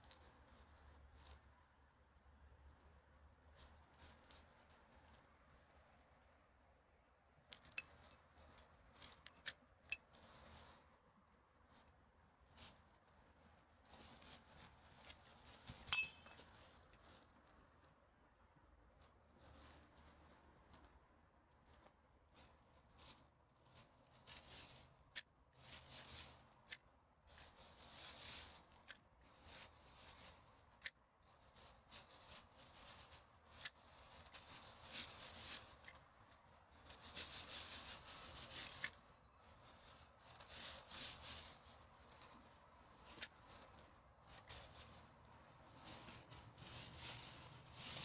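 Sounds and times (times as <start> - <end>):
litter rustling and crinkling: 0.0 - 1.6, 2.8 - 6.4, 7.4 - 18.0, 18.9 - 48.0.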